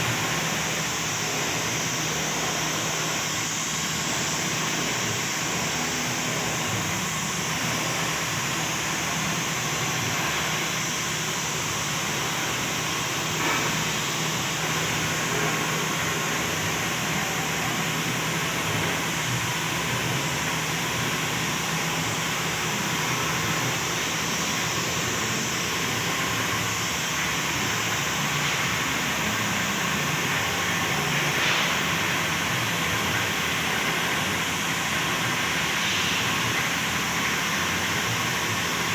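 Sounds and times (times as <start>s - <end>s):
paint spray gun hissing: 35.2s - 38.3s.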